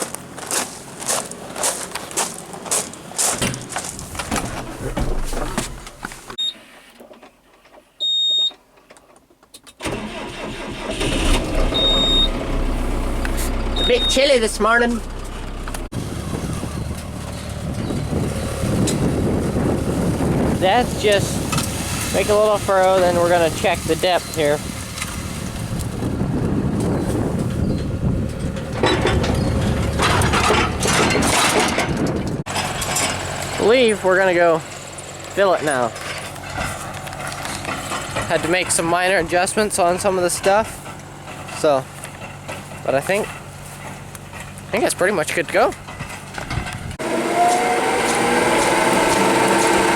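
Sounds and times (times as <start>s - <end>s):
crunching and scraping: 0.0s - 7.9s, 11.0s - 49.9s
vehicle engine running: 11.0s - 49.9s
high electronic beep: 11.7s - 12.4s, 13.7s - 14.4s.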